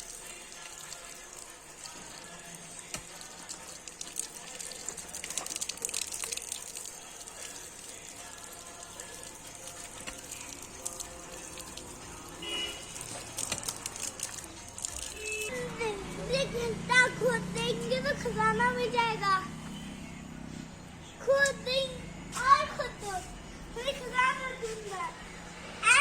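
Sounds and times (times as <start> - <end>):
running water: 0.0 - 15.7.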